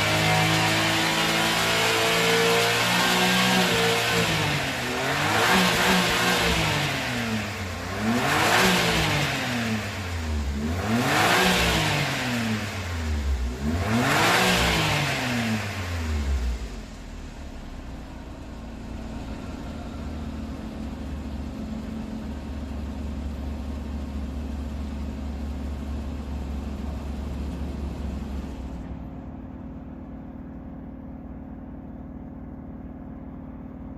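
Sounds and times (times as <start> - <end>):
car engine revving and idling: 0.0 - 33.9.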